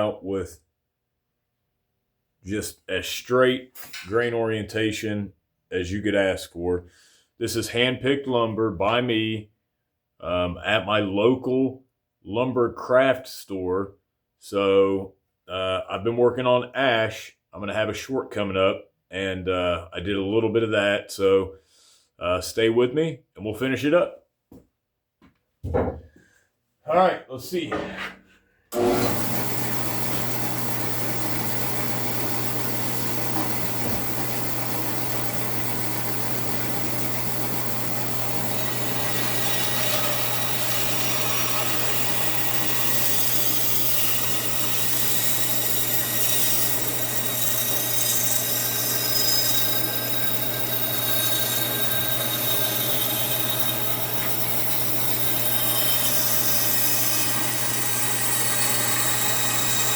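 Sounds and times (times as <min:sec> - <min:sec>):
bandsaw motor hum: 0:28.7 - 0:59.9
saw blade cutting wood: 0:28.8 - 0:59.9.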